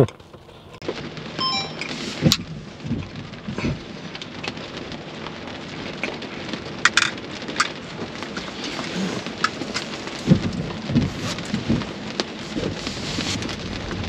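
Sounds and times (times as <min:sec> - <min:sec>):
rain pattering on car roof: 0:00.0 - 0:14.0
heavier raindrop taps: 0:00.8 - 0:14.0.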